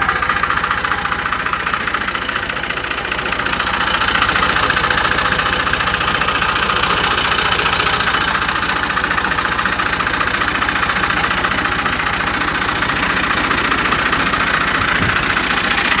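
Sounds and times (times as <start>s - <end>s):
tractor diesel engine idling: 0.0s - 16.0s.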